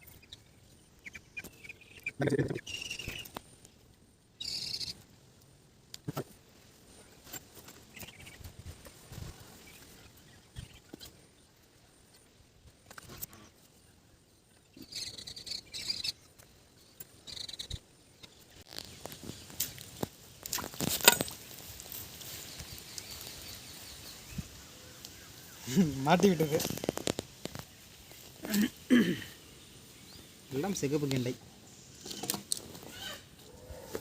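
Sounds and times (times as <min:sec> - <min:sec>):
short high-pitched animal calls: 0:32.9 - 0:34.0.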